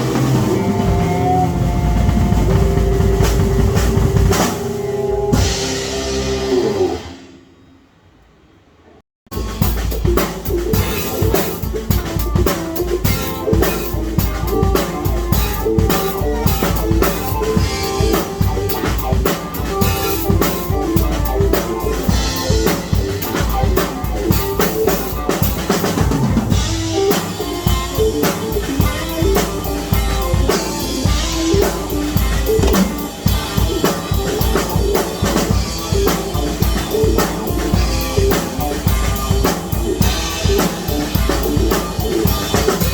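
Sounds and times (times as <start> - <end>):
drum kit hits: 0.0 - 7.2, 9.3 - 42.9
pitched instruments: 26.6 - 42.9.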